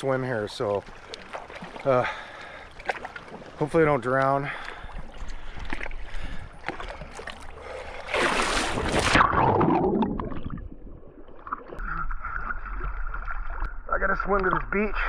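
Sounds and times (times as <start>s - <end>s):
water splashing from swimmer: 0.8s - 10.6s.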